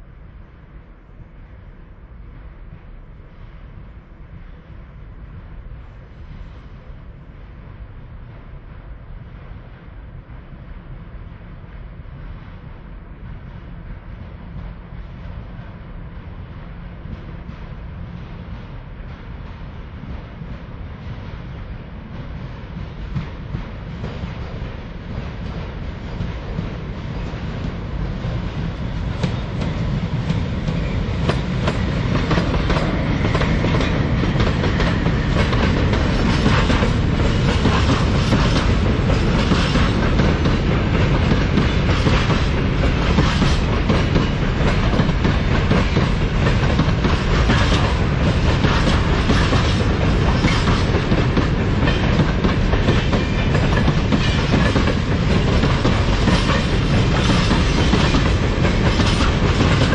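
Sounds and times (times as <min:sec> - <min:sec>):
freight train wheels clattering: 0:12.0 - 0:59.9.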